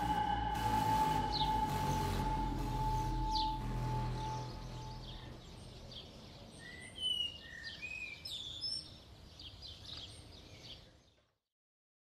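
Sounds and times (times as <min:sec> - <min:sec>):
high whistled notes: 0:00.0 - 0:05.4
small birds chirping: 0:01.3 - 0:11.3.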